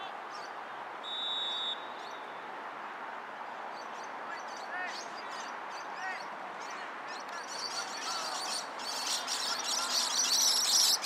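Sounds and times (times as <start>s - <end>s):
birds chirping and chattering: 3.8s - 11.0s.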